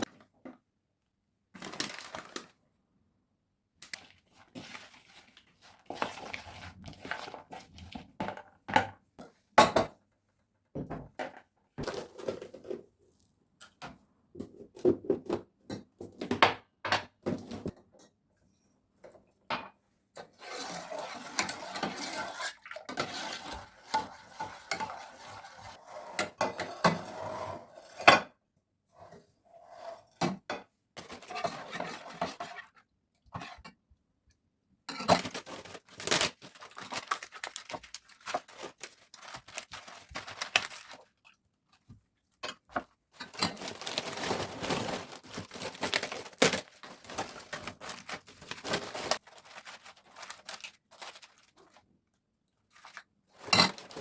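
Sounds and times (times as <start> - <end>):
rustling: 43.3 - 51.8.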